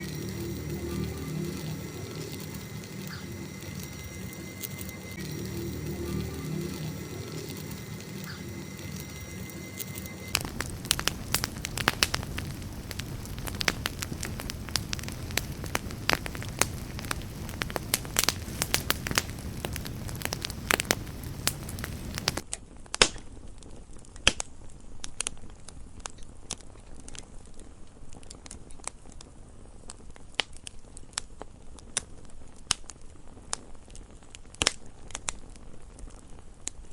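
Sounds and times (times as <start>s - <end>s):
campfire crackling and popping: 0.0s - 9.2s, 9.8s - 22.4s
steady tone: 0.0s - 22.2s.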